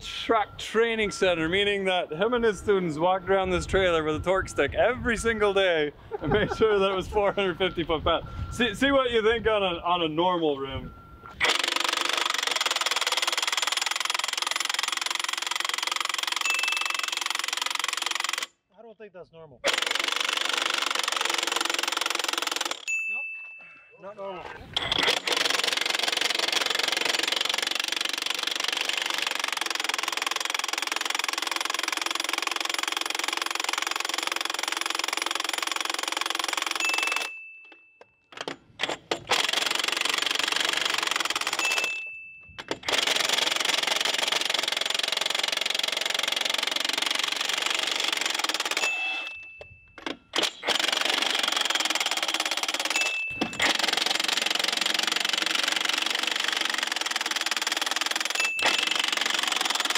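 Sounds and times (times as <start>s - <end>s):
high whine of impact wrench: 11.3s - 18.5s, 42.7s - 59.9s
impact wrench hammering: 38.4s - 59.9s.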